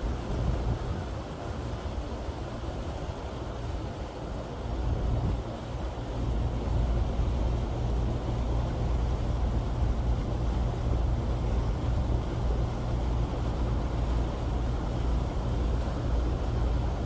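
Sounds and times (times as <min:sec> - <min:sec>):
wind noise: 0:00.0 - 0:04.0, 0:04.6 - 0:05.7
boat engine drone: 0:00.0 - 0:17.0
water noise: 0:00.0 - 0:17.0.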